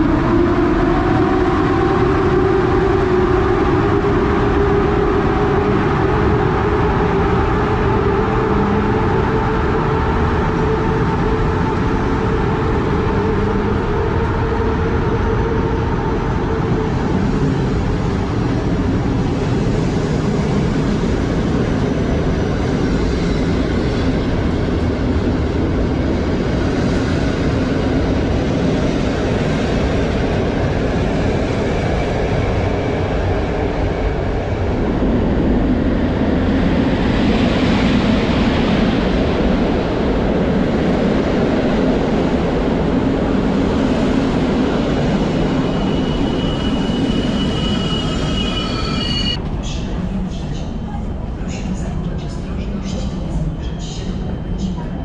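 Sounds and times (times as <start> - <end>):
electric locomotive passing: 0.0 - 55.0.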